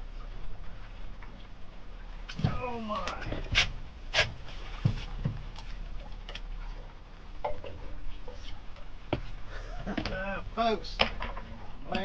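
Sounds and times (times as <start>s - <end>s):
dull thumps in a boat: 2.3s - 5.6s.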